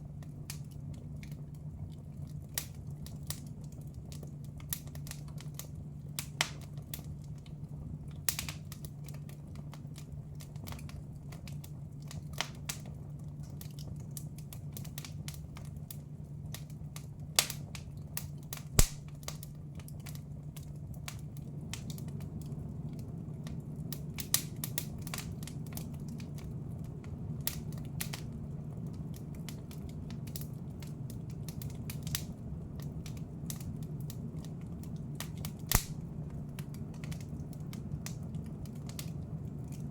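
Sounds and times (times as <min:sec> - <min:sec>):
wood fire crackling and popping: 0:00.0 - 0:39.9
steady low hum: 0:18.6 - 0:19.5.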